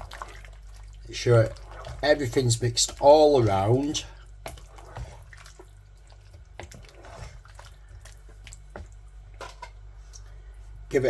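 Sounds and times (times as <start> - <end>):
low steady hum: 0.0 - 11.0
wet sloppy stirring: 0.0 - 11.0.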